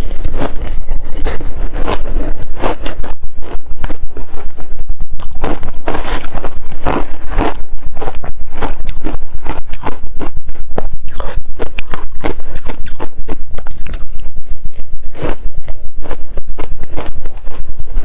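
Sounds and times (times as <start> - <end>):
ice crunched between teeth: 5.2 - 10.4.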